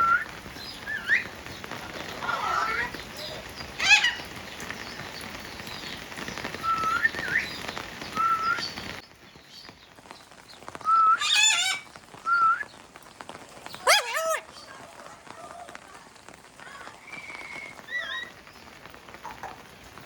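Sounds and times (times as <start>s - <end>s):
parrot harsh squawk: 2.1s - 2.9s, 3.8s - 4.3s, 11.2s - 11.8s, 13.8s - 15.8s.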